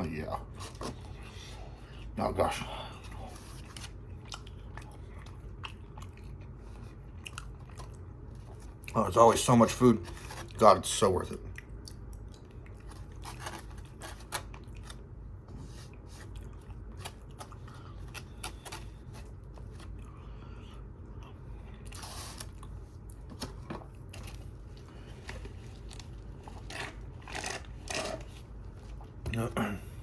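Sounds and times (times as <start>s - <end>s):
person chewing food: 3.1s - 9.0s, 11.5s - 15.1s, 15.9s - 23.3s, 23.9s - 29.2s.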